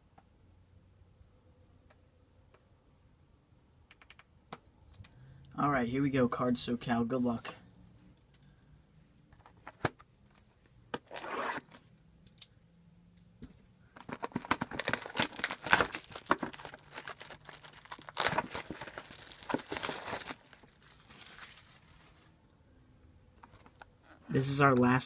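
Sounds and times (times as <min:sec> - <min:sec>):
plastic wrapping tearing and crinkling: 0:14.0 - 0:22.3.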